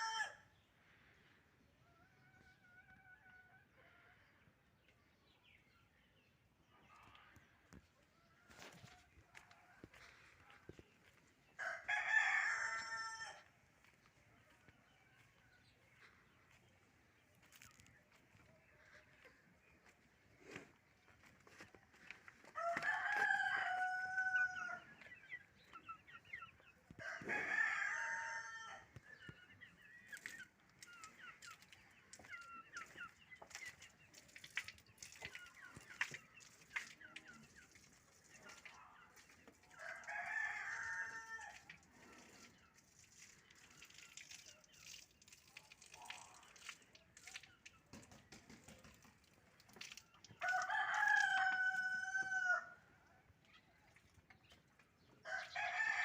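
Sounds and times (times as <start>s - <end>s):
chicken clucks and chirps: 0.0s - 56.0s
rooster crowing: 11.6s - 13.5s, 22.6s - 24.8s, 50.4s - 52.8s, 55.3s - 56.0s.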